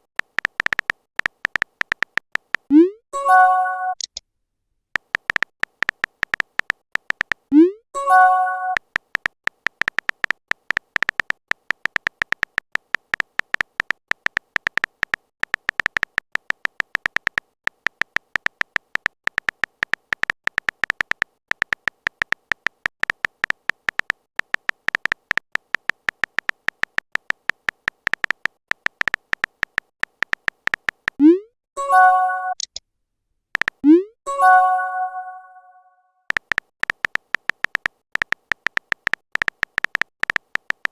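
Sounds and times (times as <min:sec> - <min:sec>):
electronic typing clicks: 0:00.0 - 0:04.2, 0:05.0 - 0:32.8, 0:33.5 - 0:35.0, 0:36.3 - 0:40.9
notification chime: 0:03.2 - 0:04.0, 0:08.0 - 0:08.8, 0:31.8 - 0:32.6, 0:34.3 - 0:35.8.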